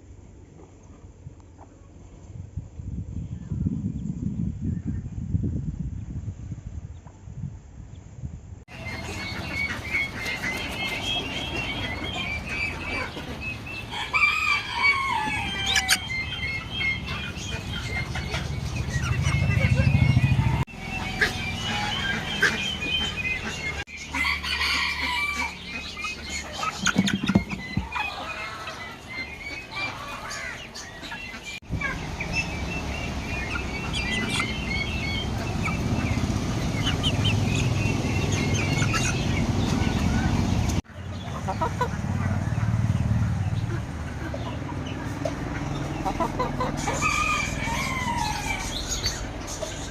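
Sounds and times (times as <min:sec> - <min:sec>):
chicks peeping: 0:08.7 - 0:49.9.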